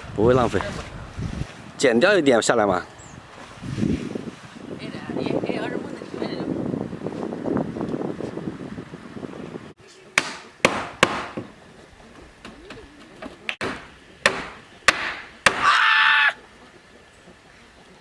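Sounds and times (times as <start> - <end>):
hand tool striking wood: 10.2 - 11.5, 13.5 - 15.7.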